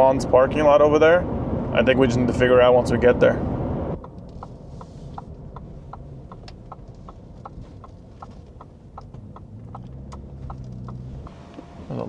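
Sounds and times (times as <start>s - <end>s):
truck cabin rumble: 0.0s - 12.0s
turn signal ticking: 3.5s - 12.0s.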